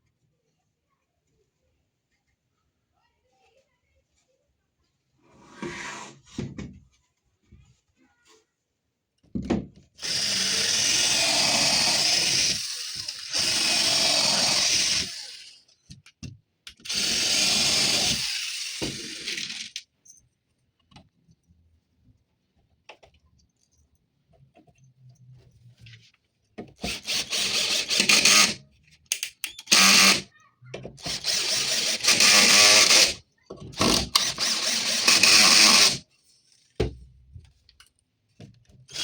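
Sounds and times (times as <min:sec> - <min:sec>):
power tool working wood: 0:10.0 - 0:15.5, 0:16.9 - 0:19.8, 0:26.8 - 0:28.6, 0:29.7 - 0:30.2, 0:31.0 - 0:33.2, 0:33.8 - 0:36.0.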